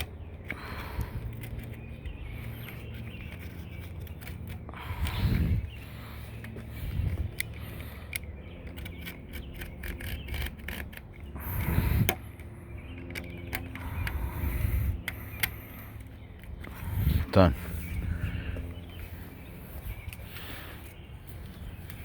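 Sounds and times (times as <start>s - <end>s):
sharp clicks: 12.0s - 16.7s.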